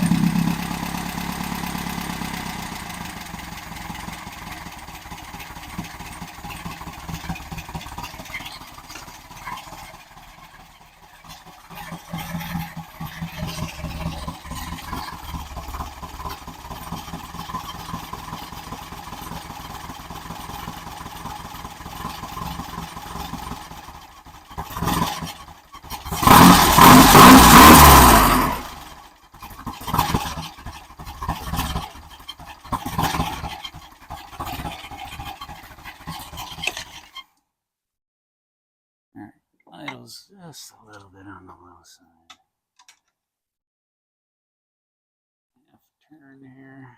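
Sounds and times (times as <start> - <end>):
engine revving and idling unevenly: 0.0 - 36.8.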